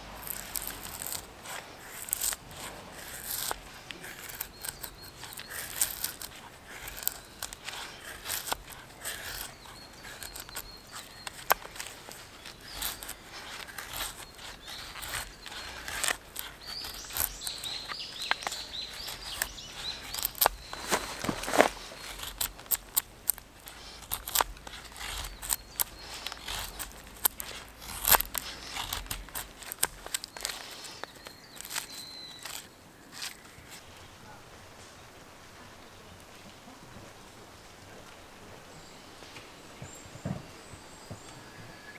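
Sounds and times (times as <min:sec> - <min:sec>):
small bird chirping: 0:03.0 - 0:34.4.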